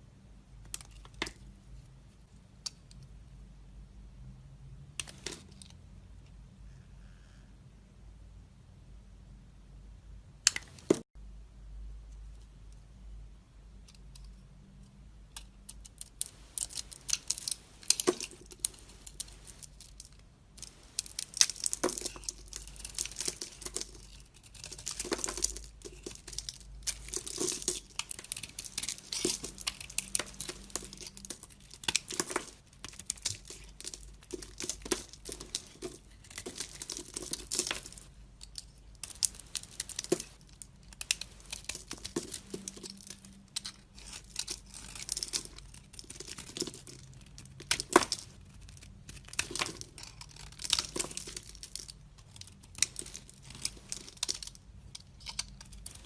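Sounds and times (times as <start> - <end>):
knife cutting soap crackling: 20.6 - 40.4, 41.0 - 56.0.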